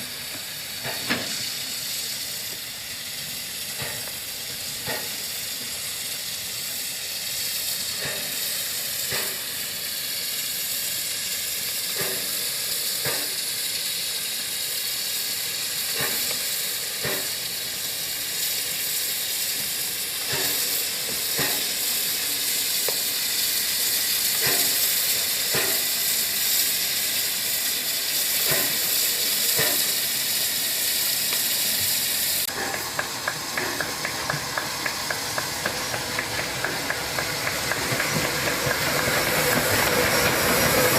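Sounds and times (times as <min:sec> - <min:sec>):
steam locomotive hissing: 0:00.0 - 0:40.9.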